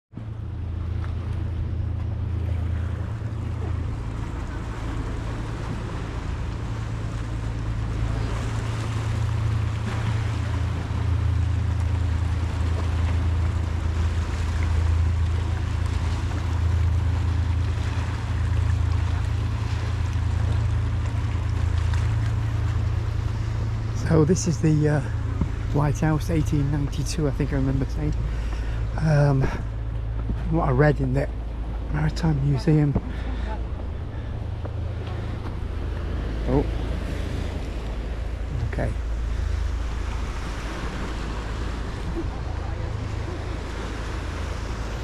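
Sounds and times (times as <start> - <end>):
outdoor waterfront noise: 0.0 - 45.0.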